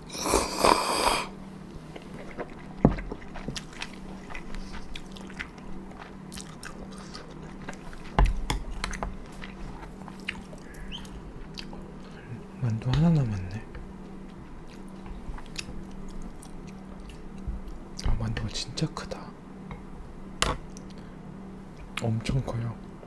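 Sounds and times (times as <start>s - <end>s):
faint low hum: 0.0s - 23.0s
chewing noodles: 1.9s - 12.1s.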